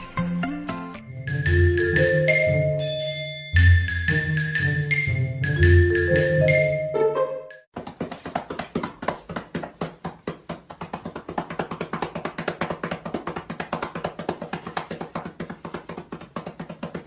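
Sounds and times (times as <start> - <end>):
fast wooden tapping percussion: 7.7 - 17.0.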